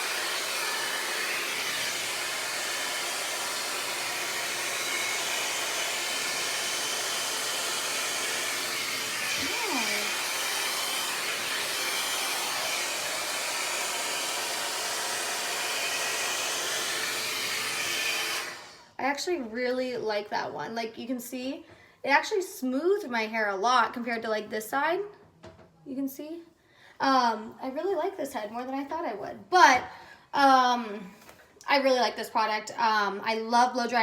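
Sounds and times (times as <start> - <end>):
blow-dry brush air rushing: 0.0 - 18.9.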